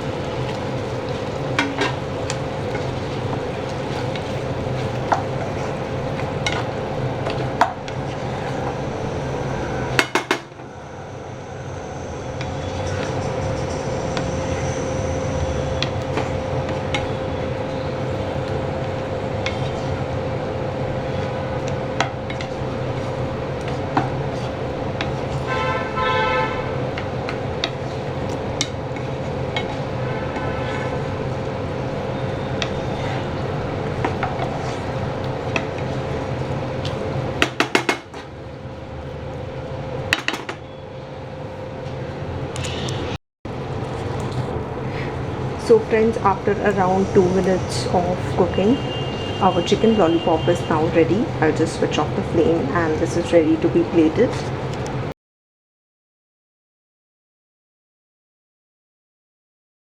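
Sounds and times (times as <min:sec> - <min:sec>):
steady hum: 0:00.0 - 0:55.1
metal spoon scraping a pan: 0:32.2 - 0:36.2.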